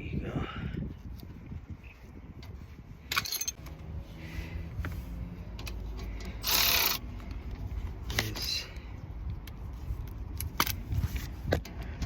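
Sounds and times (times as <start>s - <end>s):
metal brake parts clinking: 3.1s - 3.7s.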